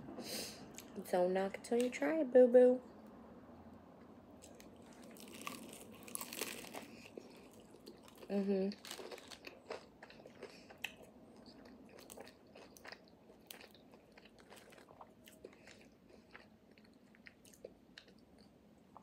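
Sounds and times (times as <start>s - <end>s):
chewing food close to microphone: 4.4s - 19.0s.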